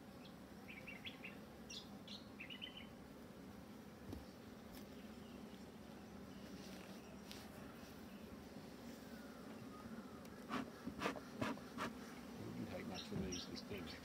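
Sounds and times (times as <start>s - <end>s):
honeybees humming: 0.0s - 14.0s
small bird chirping: 0.2s - 3.0s.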